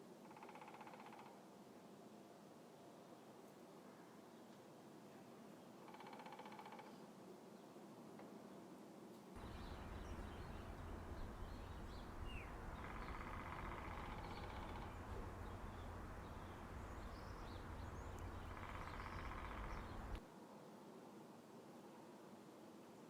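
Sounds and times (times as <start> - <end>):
woodpecker drumming on wood: 0.2 - 1.4, 5.8 - 6.9, 9.4 - 20.2
bird chirps: 9.4 - 20.2
low outdoor rumble: 9.4 - 20.2.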